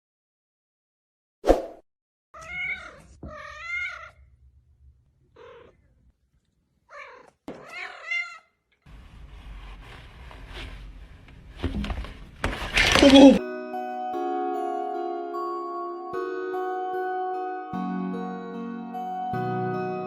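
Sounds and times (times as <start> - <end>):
cat meowing: 2.4 - 4.3, 5.3 - 5.9, 6.9 - 8.6.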